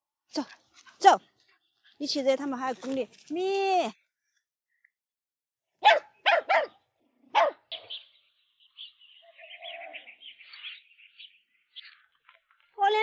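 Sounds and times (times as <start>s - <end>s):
dog barking in sharp yaps: 5.8s - 7.8s.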